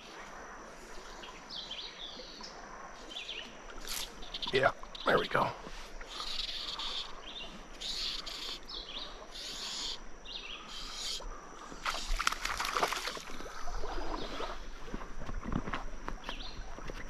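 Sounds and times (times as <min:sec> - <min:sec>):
songbird singing: 0:00.0 - 0:15.0, 0:15.6 - 0:17.0
splashing from wading: 0:11.8 - 0:15.0.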